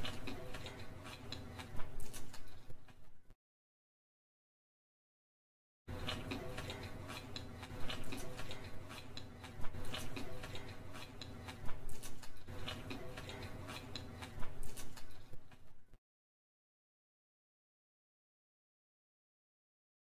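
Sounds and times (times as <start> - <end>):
chewing clicks and crackles: 0.0 - 3.1, 5.9 - 15.9.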